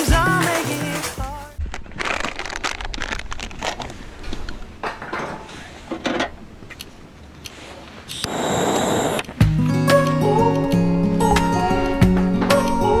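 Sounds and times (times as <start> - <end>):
steady hiss: 7.4 - 13.0.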